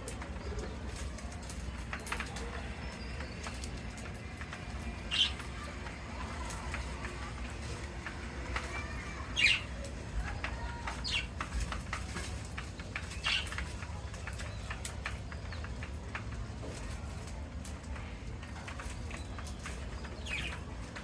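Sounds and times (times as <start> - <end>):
light clicks and rustles: 0.0 - 21.0
parakeets calling shrilly: 5.0 - 6.9, 8.6 - 11.6, 13.1 - 13.6.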